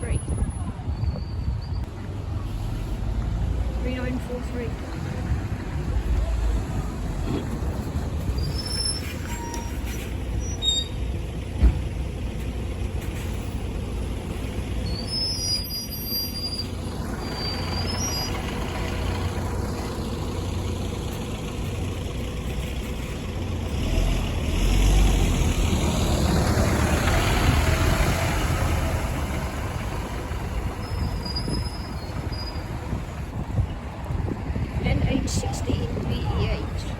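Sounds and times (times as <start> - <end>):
bus engine rumbling: 0.0 - 36.9
vehicle passing: 23.7 - 31.1.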